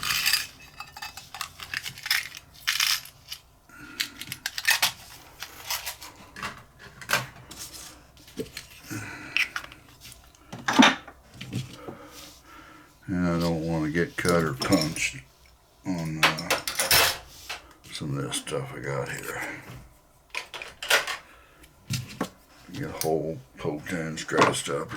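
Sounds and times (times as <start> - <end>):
small metal objects clinking: 0.0 - 6.1.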